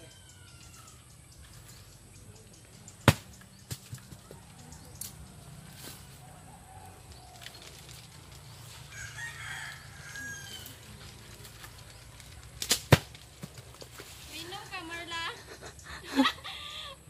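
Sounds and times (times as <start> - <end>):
rooster crowing: 8.8 - 10.9.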